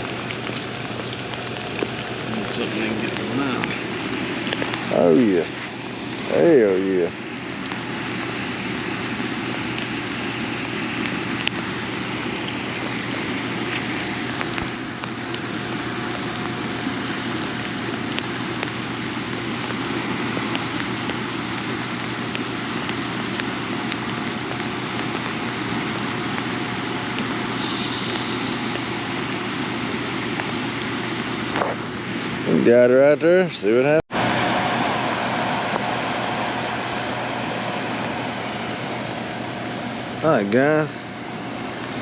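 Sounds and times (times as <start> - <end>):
rain falling: 0.0 - 32.5
faint steady hum: 0.0 - 42.0.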